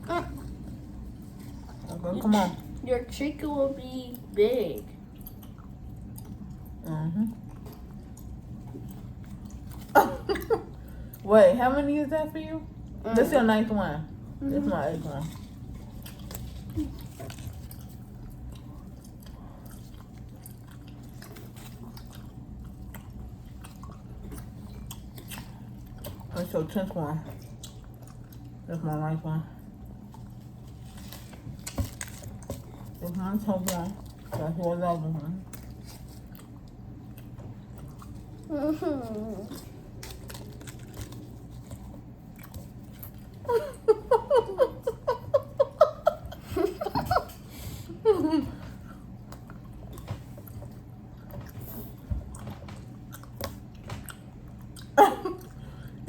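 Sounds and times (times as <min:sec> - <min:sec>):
chewing gum smacking: 0:04.2 - 0:09.9, 0:15.4 - 0:26.3, 0:27.3 - 0:28.7, 0:39.1 - 0:43.5, 0:48.8 - 0:56.0.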